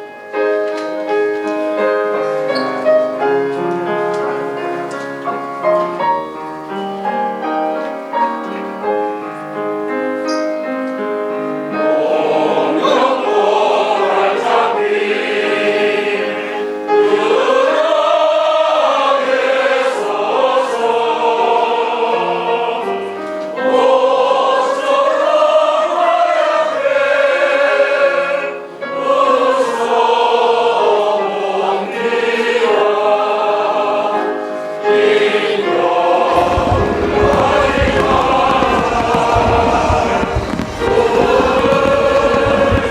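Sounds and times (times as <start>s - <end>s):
piano accompaniment: 0.0s - 42.9s
group singing: 11.7s - 42.9s.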